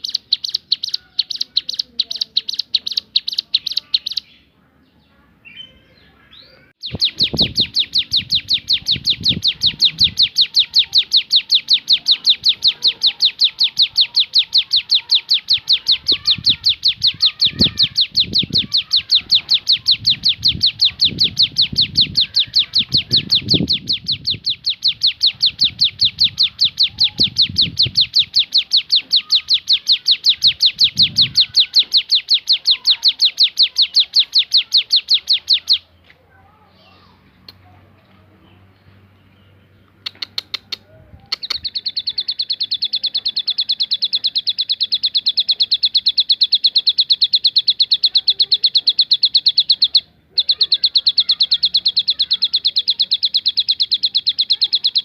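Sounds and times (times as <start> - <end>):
bird singing high chipping notes: 0.0 - 36.0, 41.4 - 55.0.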